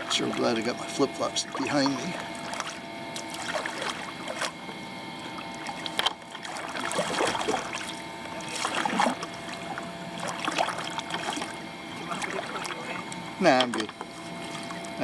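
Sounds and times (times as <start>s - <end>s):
water splashing around kayak: 0.0s - 15.0s
paddle knocking against kayak: 13.6s - 14.2s.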